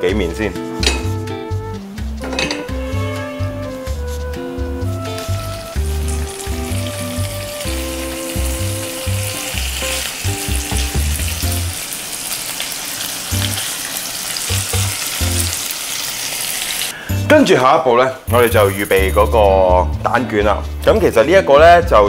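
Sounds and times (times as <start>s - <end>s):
background music with bass line: 0.0s - 11.7s, 18.3s - 22.0s
meat sizzling in hot oil: 5.1s - 17.0s.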